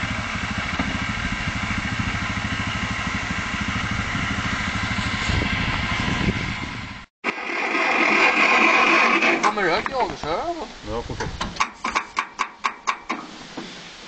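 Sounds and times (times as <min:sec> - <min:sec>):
engine running steadily: 0:00.0 - 0:09.5.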